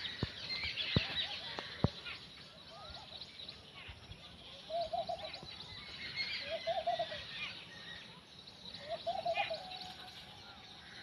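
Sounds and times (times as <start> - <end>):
birds chirping and twittering: 0.0 - 11.0
low warbling bird call: 8.8 - 11.0.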